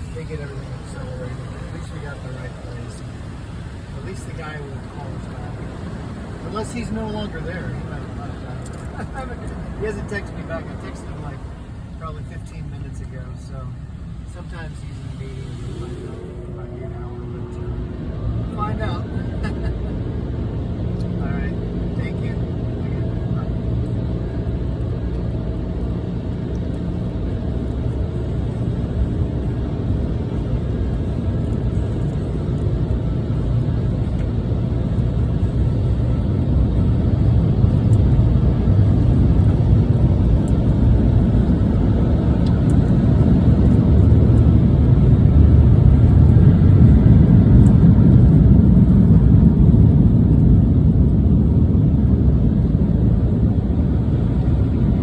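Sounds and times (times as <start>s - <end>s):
car cabin rumble: 0.0s - 20.0s.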